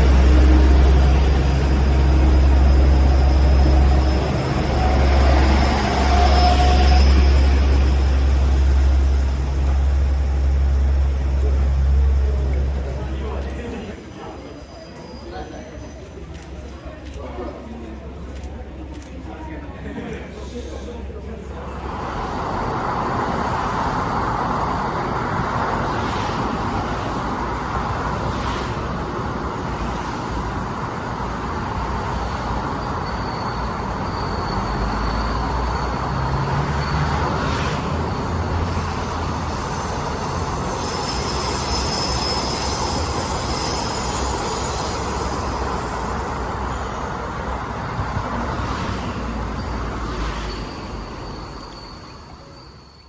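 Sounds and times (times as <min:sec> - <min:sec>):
thin high whine: 0:00.0 - 0:13.4
train rumble on track: 0:00.0 - 0:53.0.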